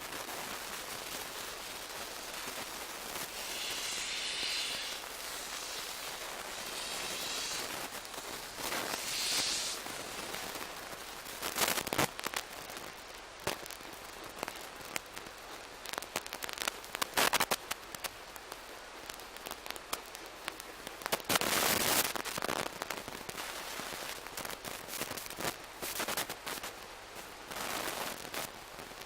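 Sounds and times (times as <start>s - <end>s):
steam locomotive hissing steam: 2.2s - 10.5s.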